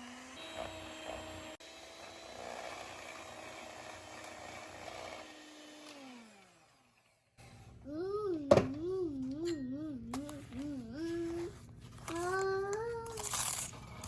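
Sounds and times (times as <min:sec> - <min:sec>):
small electric motor humming: 0:00.0 - 0:07.4.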